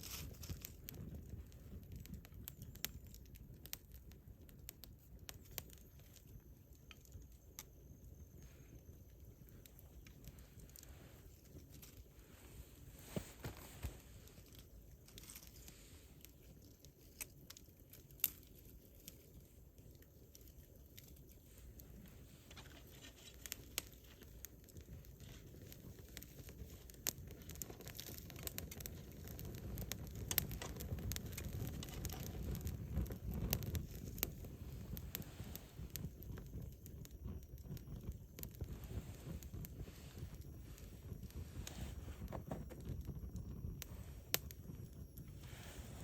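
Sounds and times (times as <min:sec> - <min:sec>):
campfire crackling: 0:00.0 - 0:46.0.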